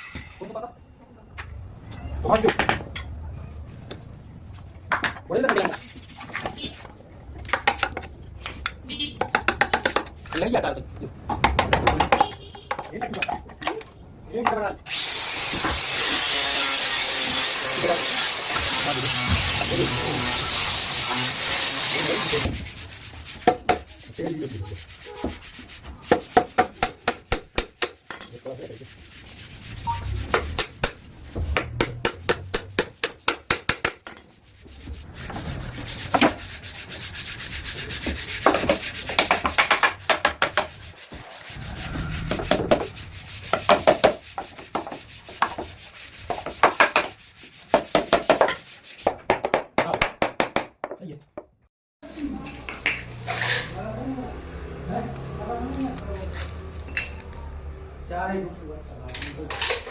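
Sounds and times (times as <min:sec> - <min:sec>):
wood being hand-sanded: 0:14.9 - 0:49.3.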